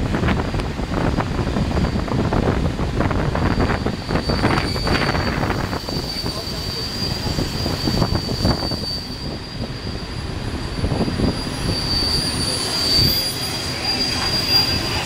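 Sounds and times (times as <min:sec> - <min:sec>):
train wheels rumbling on rails: 0:00.0 - 0:15.0
high wheel squeal: 0:03.4 - 0:15.0.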